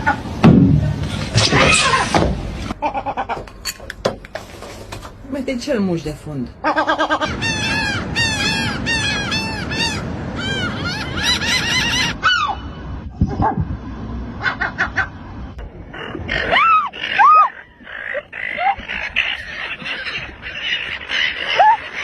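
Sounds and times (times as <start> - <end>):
seagulls calling: 6.6 - 13.5, 14.4 - 22.0.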